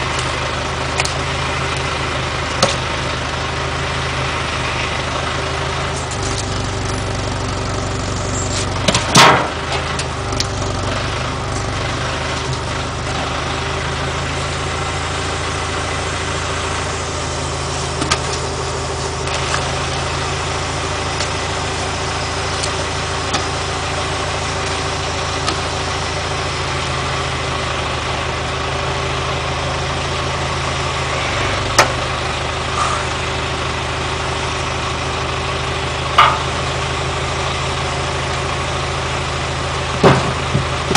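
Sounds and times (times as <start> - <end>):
tractor engine idling: 0.0 - 40.9
sharp knocks: 40.0 - 40.9.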